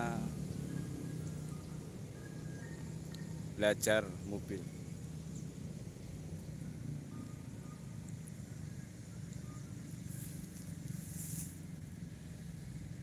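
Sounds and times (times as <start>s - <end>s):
distant car engines rumbling: 0.0s - 13.0s.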